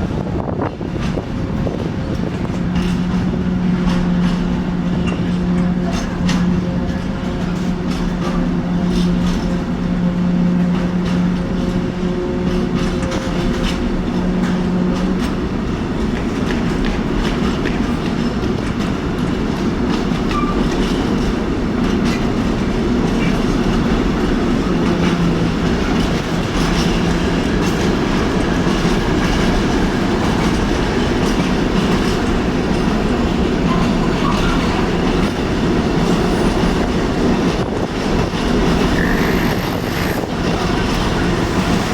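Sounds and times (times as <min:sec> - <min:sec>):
train rumbling: 0:00.0 - 0:41.9
wheels clattering over rails: 0:00.1 - 0:41.9.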